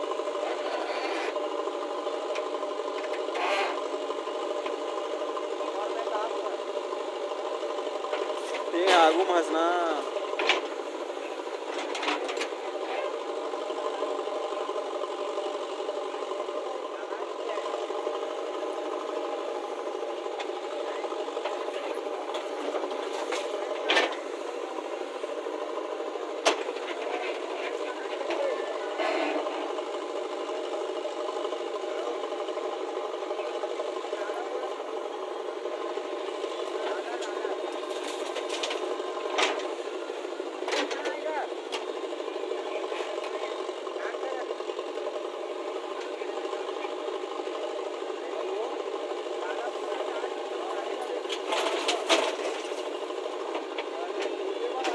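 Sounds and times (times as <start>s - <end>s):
small engine running: 0.0s - 54.9s
steady machine hum: 0.0s - 54.9s.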